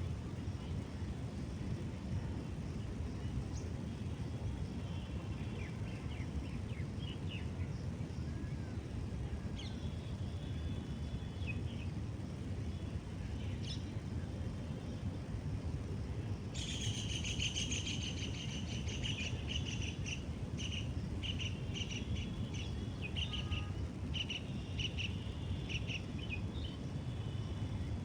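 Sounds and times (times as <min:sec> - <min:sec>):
low outdoor rumble: 0:00.0 - 0:28.0
small birds chirping: 0:09.5 - 0:14.0, 0:16.6 - 0:27.5.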